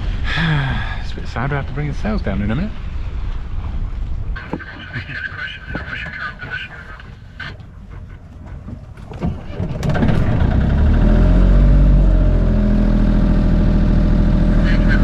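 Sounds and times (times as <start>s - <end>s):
faint wind: 0.0s - 15.0s
water noise: 0.0s - 15.0s
boat engine starting and running: 4.4s - 15.0s.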